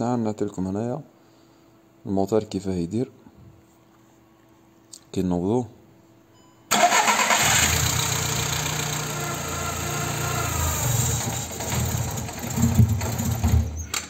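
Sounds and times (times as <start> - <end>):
car engine starting and running: 6.7 - 13.4.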